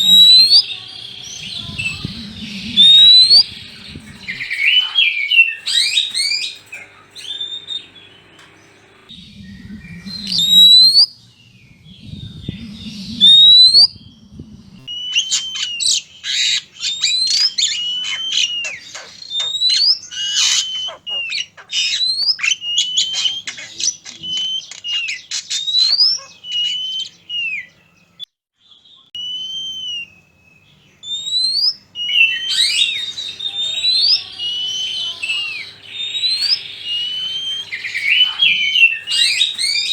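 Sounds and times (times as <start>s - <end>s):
magpie-robin whistles: 0.0s - 8.1s, 9.1s - 14.2s, 14.8s - 28.3s, 29.2s - 39.9s
scratchy bird chattering: 0.0s - 9.1s, 14.8s - 27.7s, 31.2s - 39.9s
loud low rumbles: 0.8s - 4.5s, 8.8s - 14.9s.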